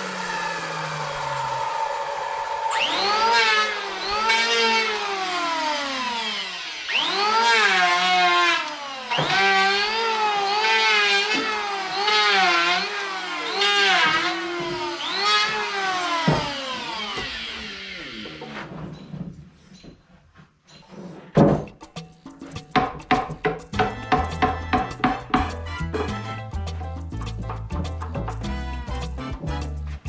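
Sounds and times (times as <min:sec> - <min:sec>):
power tool motor revving: 0:00.0 - 0:18.8.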